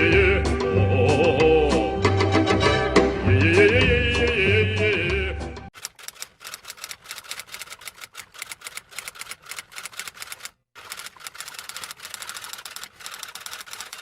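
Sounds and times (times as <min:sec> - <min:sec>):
rapid keyboard typing: 0:05.8 - 0:14.0.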